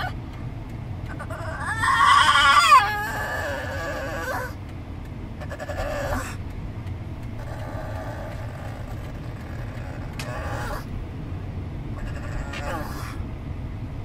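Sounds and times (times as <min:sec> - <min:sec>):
moving car rumble: 0:00.0 - 0:14.0
dog whining in squeaky calls: 0:01.1 - 0:04.6, 0:05.4 - 0:06.4, 0:07.4 - 0:10.9, 0:12.0 - 0:13.2.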